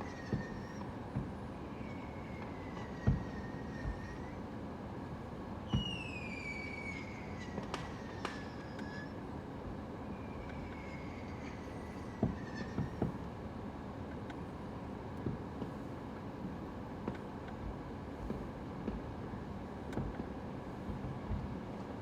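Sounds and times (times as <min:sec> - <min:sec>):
falling firework whistles: 0:05.7 - 0:09.2.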